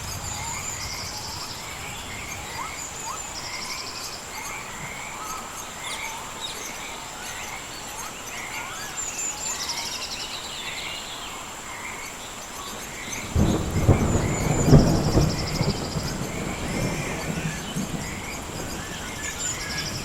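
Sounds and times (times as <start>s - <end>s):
thunder crack and rumble: 0.0s - 5.0s, 13.2s - 20.0s.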